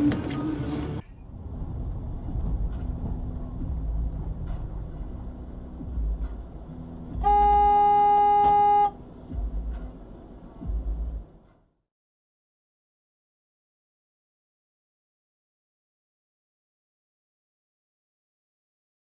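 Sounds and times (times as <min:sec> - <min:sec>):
traffic noise: 0:00.0 - 0:11.7
car horn blast: 0:07.2 - 0:09.0.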